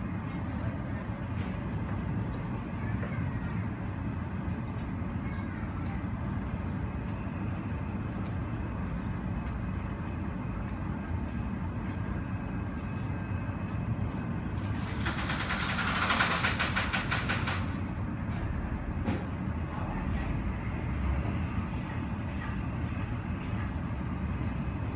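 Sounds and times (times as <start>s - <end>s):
distant jet airliners: 0.0s - 24.9s
low rumble of airport apron: 0.0s - 24.9s
rapid rattling clatter of clicks: 14.7s - 17.8s.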